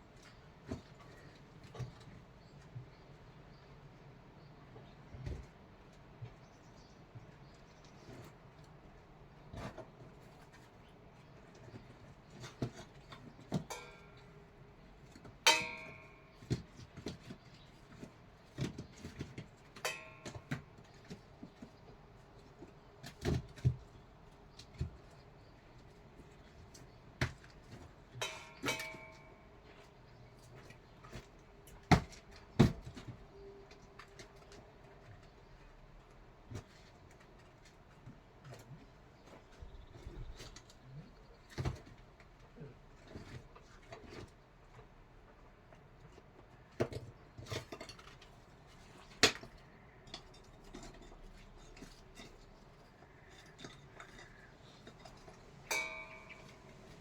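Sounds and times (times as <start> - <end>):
pots and dishes clinking: 13.6 - 14.3, 15.5 - 16.6, 19.8 - 20.6, 28.2 - 29.5, 53.1 - 57.0.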